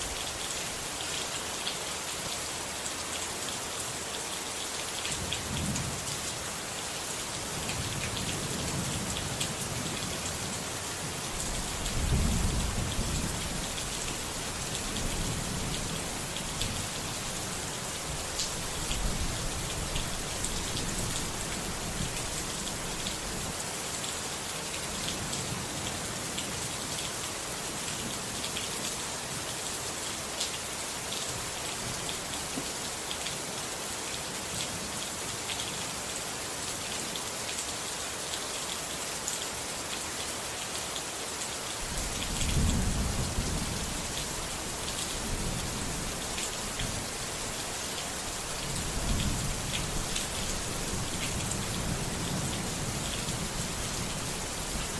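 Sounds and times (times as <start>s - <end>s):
steady rain falling: 0.0s - 54.9s
low rumble of thunder: 11.4s - 14.0s, 41.9s - 46.2s.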